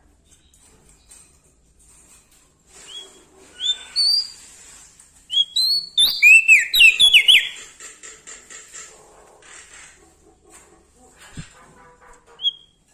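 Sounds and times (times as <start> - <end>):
bird whistling: 2.9 - 4.4, 5.3 - 7.6, 12.4 - 12.7.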